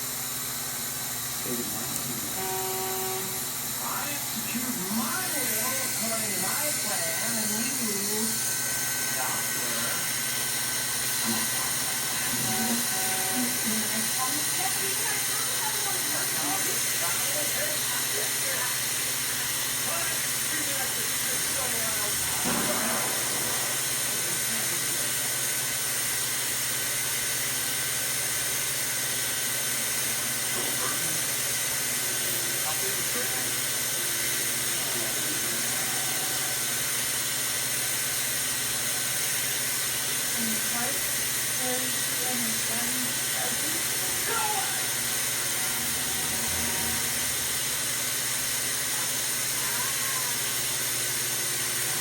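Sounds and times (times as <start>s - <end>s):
hot-air welding gun hissing: 0.0s - 52.0s
low hum: 43.6s - 48.7s.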